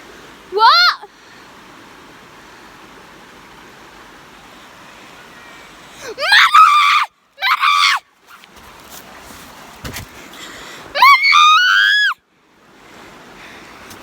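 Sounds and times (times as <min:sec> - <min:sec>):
stream running: 0:00.0 - 0:14.0
girl screaming: 0:00.5 - 0:01.1, 0:06.0 - 0:08.0, 0:11.0 - 0:12.2.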